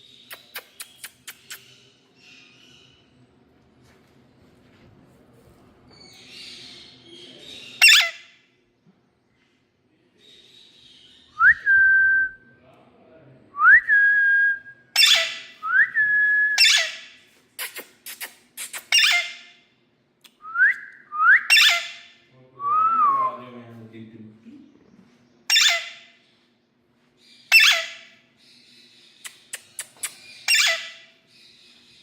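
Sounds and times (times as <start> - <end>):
parakeet whistling: 7.8 - 8.2, 15.0 - 15.5, 16.6 - 17.0, 18.9 - 19.4, 21.4 - 22.0, 25.5 - 26.0, 27.5 - 28.0, 30.1 - 31.0
parakeet squawking: 7.8 - 8.3, 15.0 - 15.5, 16.6 - 19.5, 21.5 - 22.1, 25.5 - 26.1, 27.5 - 28.1, 29.4 - 31.1.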